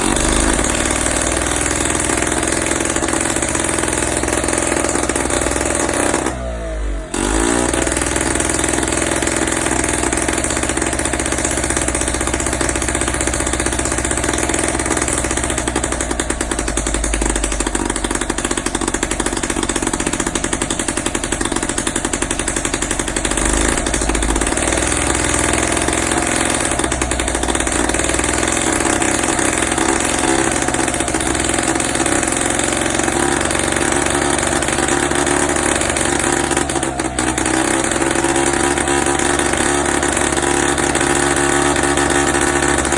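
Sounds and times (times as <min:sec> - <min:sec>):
small two-stroke engine running: 0:00.0 - 0:42.9.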